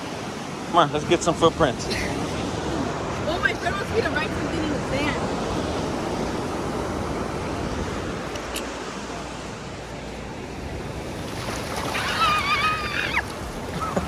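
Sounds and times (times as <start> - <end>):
ocean surf washing on beach: 0.0 - 14.0
wind on microphone: 1.4 - 14.0.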